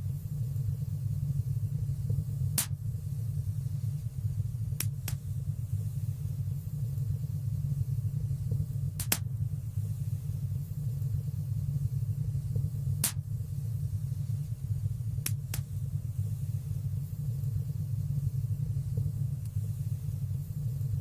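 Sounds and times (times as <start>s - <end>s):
low rumble of flames: 0.0s - 21.0s
fire crackling pops: 2.5s - 3.0s, 4.7s - 5.5s, 8.8s - 9.5s, 12.6s - 13.4s, 15.1s - 16.0s.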